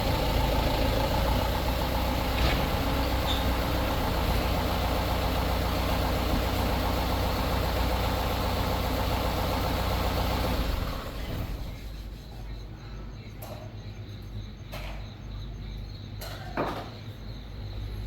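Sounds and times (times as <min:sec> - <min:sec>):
truck diesel engine idling: 0:00.0 - 0:12.0.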